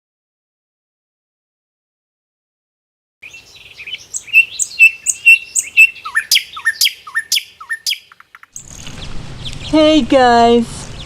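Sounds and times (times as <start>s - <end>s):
bird chirping: 3.2s - 10.1s.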